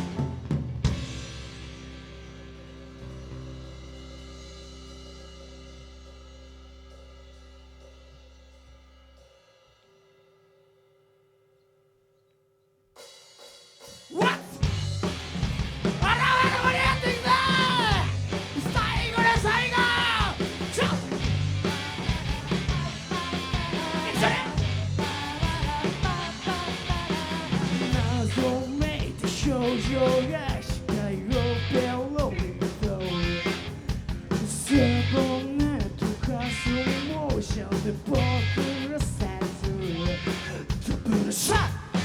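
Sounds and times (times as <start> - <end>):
live rock band playing: 0.0 - 8.3, 14.0 - 42.0
person yelling: 14.1 - 14.6, 16.0 - 21.1, 24.0 - 24.6.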